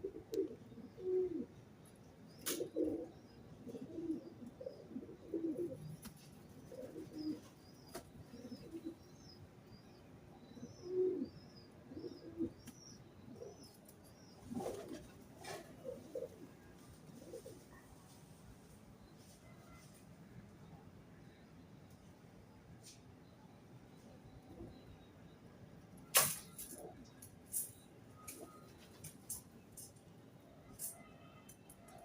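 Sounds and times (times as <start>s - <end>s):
pigeons cooing: 0.0s - 1.6s, 2.4s - 9.0s, 10.5s - 17.8s.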